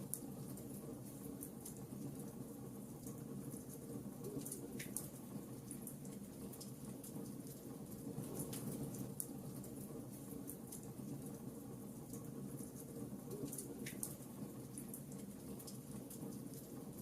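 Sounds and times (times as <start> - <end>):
low hum of flames: 0.0 - 17.0
wood fire crackling and popping: 12.1 - 17.0.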